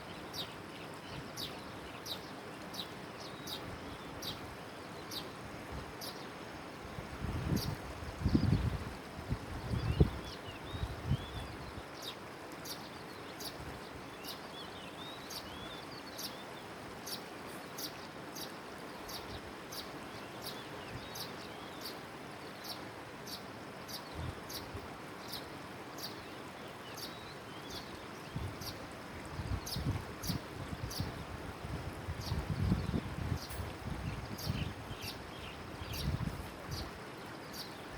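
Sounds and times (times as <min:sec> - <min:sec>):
birds twittering: 0:00.0 - 0:05.4, 0:09.7 - 0:28.8, 0:32.2 - 0:37.9.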